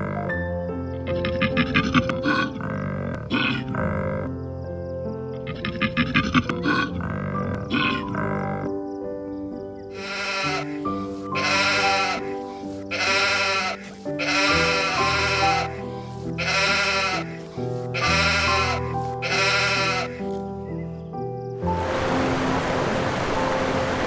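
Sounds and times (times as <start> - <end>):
background music: 0.0 - 24.0
sheep bleating: 10.0 - 10.8, 11.4 - 20.3.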